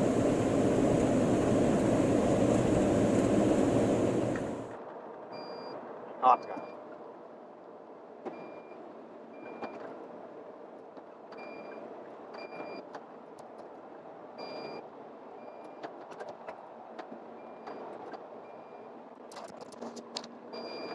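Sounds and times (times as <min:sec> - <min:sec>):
engine and road noise: 0:00.0 - 0:04.8.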